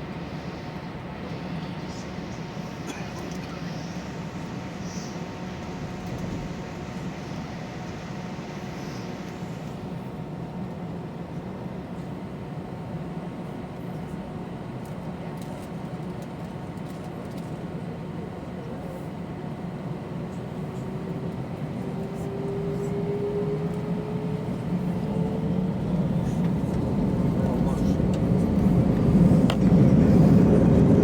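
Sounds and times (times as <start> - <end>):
jet engine and cabin hum: 0.0 - 31.0
jet engines spooling up: 21.2 - 31.0.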